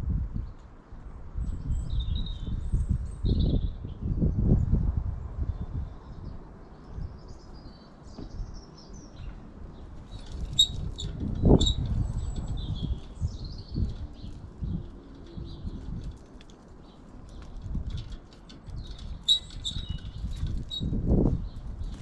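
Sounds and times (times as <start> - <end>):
small birds chirping: 5.5 - 22.0.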